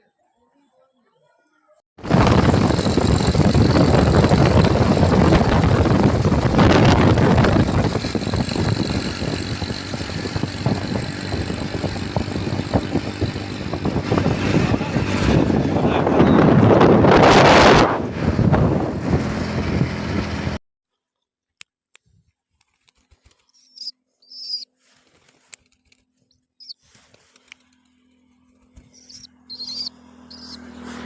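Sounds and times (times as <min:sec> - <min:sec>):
motorcycle engine at speed: 0:02.0 - 0:20.6, 0:28.0 - 0:31.0
wind rushing over microphone: 0:02.0 - 0:20.6.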